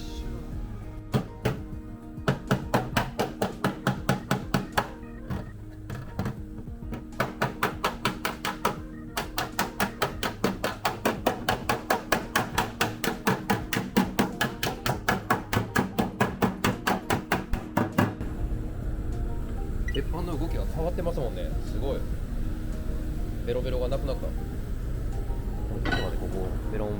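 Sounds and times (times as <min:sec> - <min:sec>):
hammer striking steel panel: 0:06.9 - 0:18.2.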